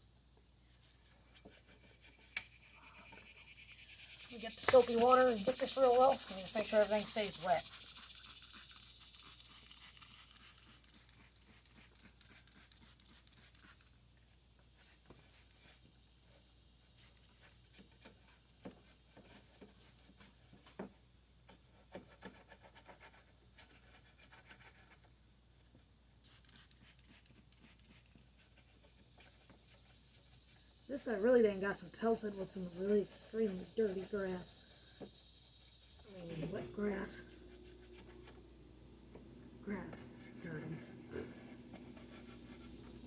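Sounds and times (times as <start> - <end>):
faint high tone: 36.0 - 43.0.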